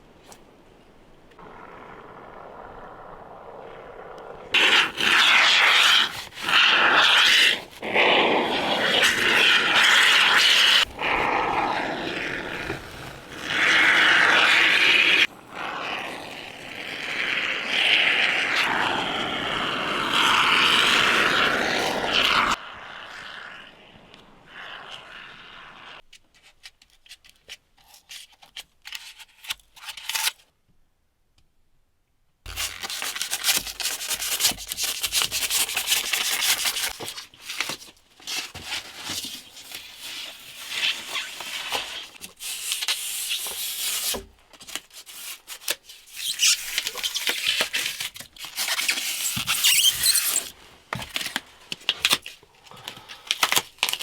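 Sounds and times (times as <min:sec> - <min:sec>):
tool scraping and grinding: 0:46.2 - 0:51.3.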